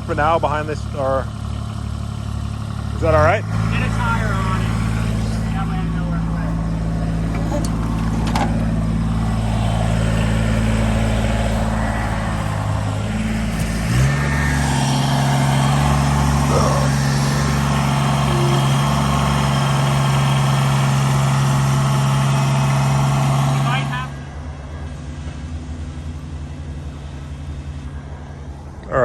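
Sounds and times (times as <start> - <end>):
tractor engine running: 0.0 - 28.6.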